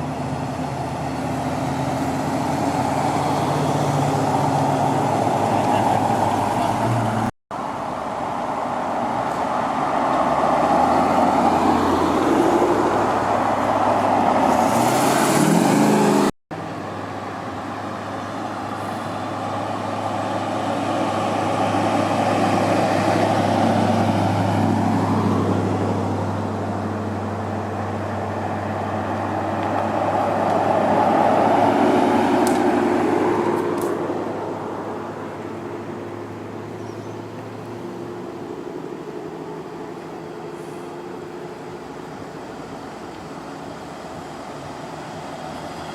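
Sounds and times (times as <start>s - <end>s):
vehicle engines running: 0.0s - 45.9s
engine revving: 9.6s - 16.4s.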